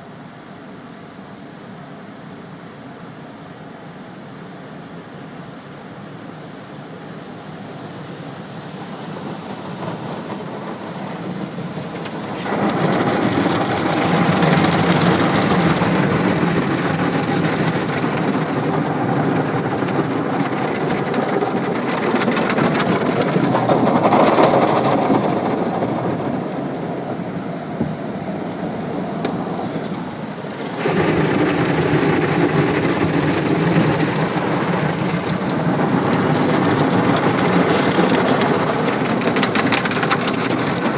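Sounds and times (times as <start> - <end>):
car wash water spray hiss: 7.5 - 17.4.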